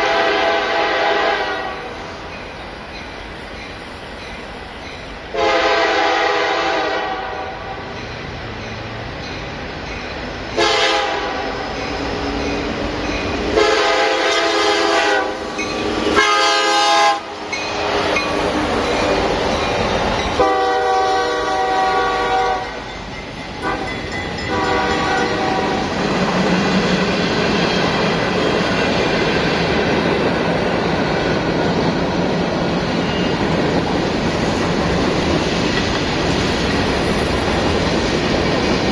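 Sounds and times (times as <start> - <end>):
locomotive air horn blasts: 0.0 - 1.9, 5.3 - 7.7, 10.6 - 11.6, 13.5 - 15.5, 16.1 - 17.4, 20.4 - 22.8, 23.6 - 25.8
train rumbling past: 0.0 - 38.9
train wheel clatter: 11.5 - 16.5, 17.4 - 20.8, 22.6 - 38.9.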